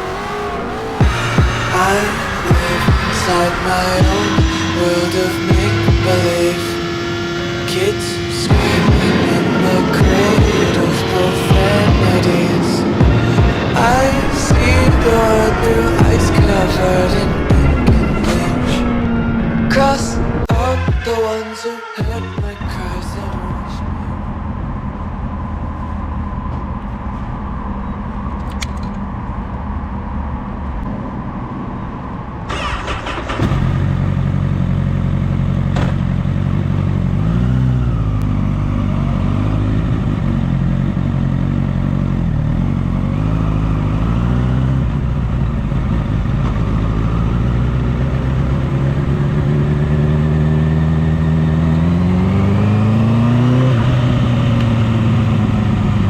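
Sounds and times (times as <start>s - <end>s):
motorcycle engine revving: 0.0s - 20.6s, 32.5s - 56.0s.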